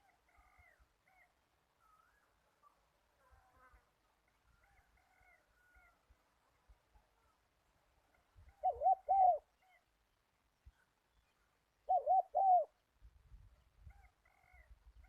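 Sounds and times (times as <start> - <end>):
dove cooing: 8.6 - 9.5, 11.9 - 12.8
faint small-bird chirps: 10.6 - 12.7.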